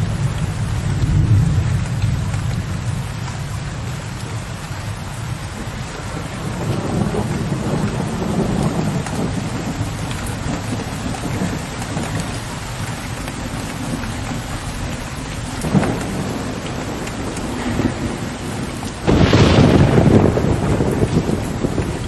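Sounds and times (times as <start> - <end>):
low rumbling thunder: 0.0 - 22.0
steady rain falling: 0.0 - 22.0
sharp thunder crack: 15.6 - 22.0.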